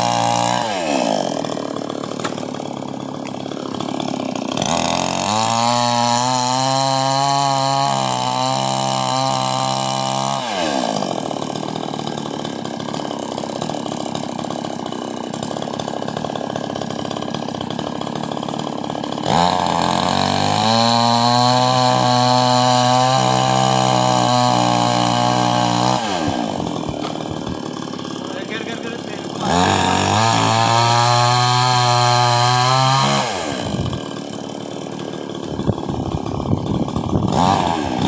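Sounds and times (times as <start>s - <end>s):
chainsaw engine revving: 0.0s - 38.0s.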